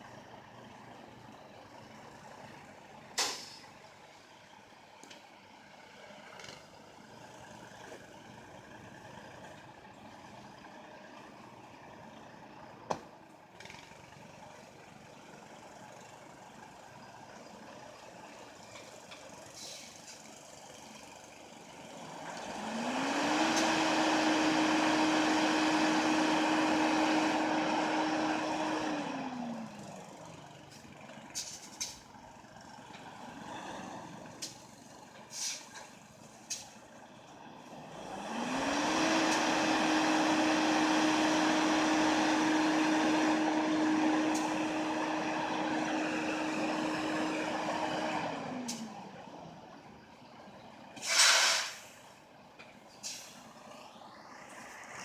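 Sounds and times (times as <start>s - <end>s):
truck tires spinning in snow: 21.8s - 30.2s, 37.8s - 49.6s, 50.9s - 52.1s
loud hiss: 51.0s - 52.1s.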